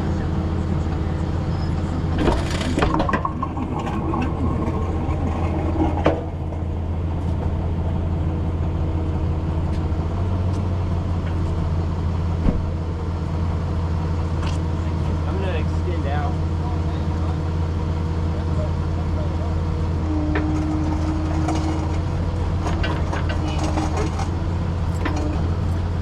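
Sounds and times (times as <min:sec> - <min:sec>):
truck engine running: 0:00.0 - 0:26.0
metallic clanks and creaks: 0:20.2 - 0:26.0.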